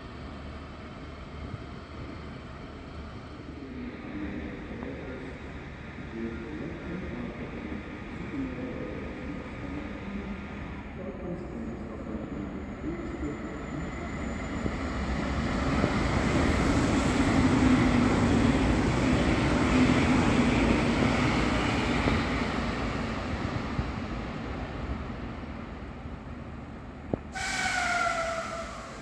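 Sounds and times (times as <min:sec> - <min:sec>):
train rumbling past: 0:00.0 - 0:29.0
train horn tone: 0:27.4 - 0:29.0.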